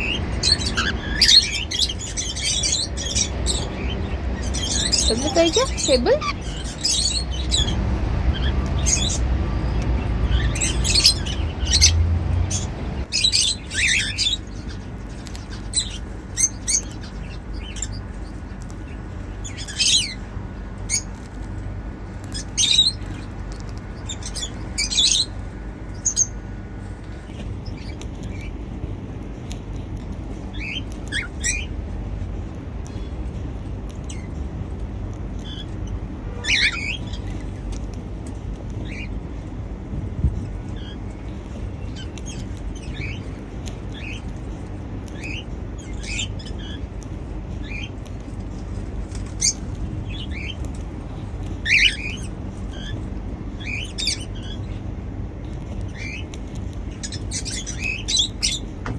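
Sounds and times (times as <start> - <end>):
cockatiels chirping: 0.0 - 21.5, 30.5 - 31.7, 35.4 - 37.6, 38.7 - 39.2, 40.7 - 44.4, 45.0 - 47.0, 47.6 - 48.0, 49.1 - 54.8, 55.7 - 58.7
low rumble: 0.0 - 57.7.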